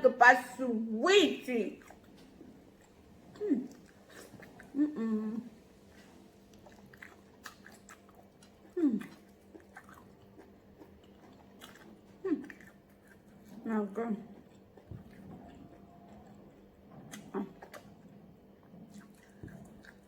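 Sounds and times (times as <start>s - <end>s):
person chewing with mouth clicks: 1.8s - 20.0s
person humming mm: 4.7s - 5.5s, 8.8s - 9.2s.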